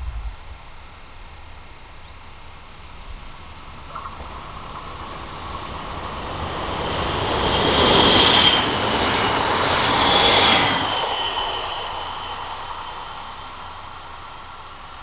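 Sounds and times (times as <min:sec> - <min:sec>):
high train whine: 0:00.0 - 0:15.0
train wheels rushing: 0:04.0 - 0:15.0.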